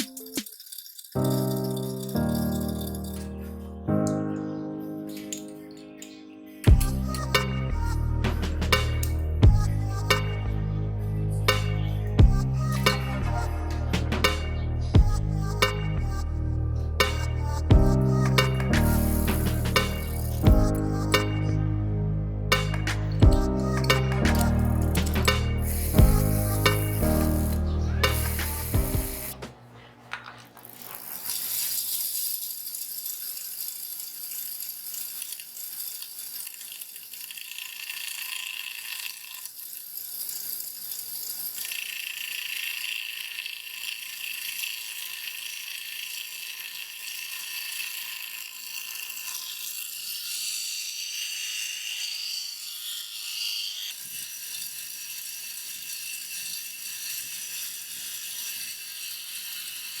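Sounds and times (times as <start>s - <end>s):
chain rattle: 0.0s - 3.5s, 30.4s - 37.7s
bench grinder running: 18.7s - 20.6s, 24.2s - 60.0s.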